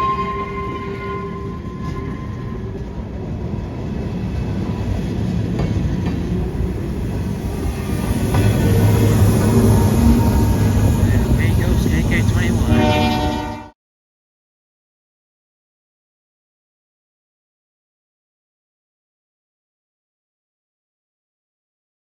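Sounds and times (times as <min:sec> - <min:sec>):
train rumbling on rails: 0:00.0 - 0:13.7
train wheels clacking: 0:04.9 - 0:12.7.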